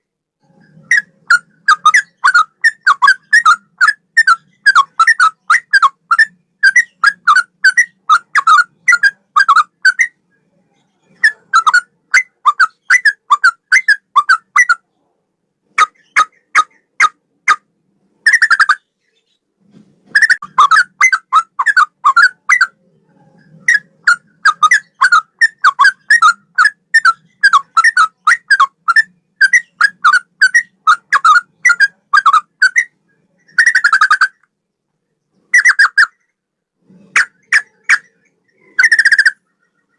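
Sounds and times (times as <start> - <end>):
bulbul singing: 0.6 - 14.8, 20.2 - 34.4.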